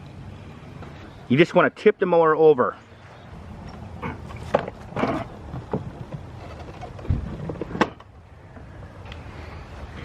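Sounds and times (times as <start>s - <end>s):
lawn mower knocks and clunks: 4.4s - 8.1s.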